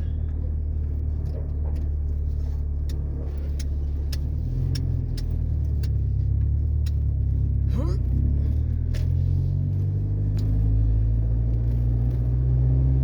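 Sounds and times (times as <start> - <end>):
pickup truck engine droning: 0.0 - 13.0
sharp ticks: 2.8 - 6.1.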